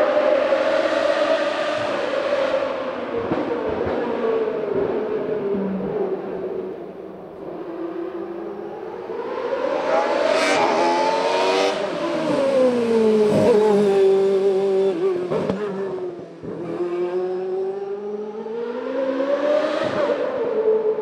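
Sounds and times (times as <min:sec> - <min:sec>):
racing car engine revving: 0:09.2 - 0:20.6.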